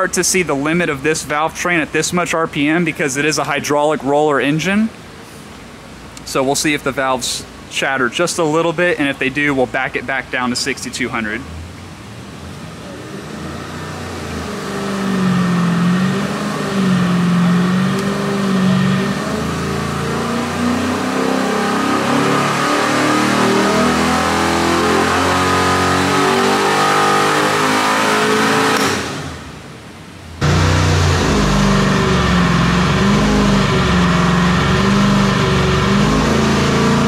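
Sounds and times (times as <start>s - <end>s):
engine revving at full throttle: 12.6s - 29.4s, 30.4s - 37.0s.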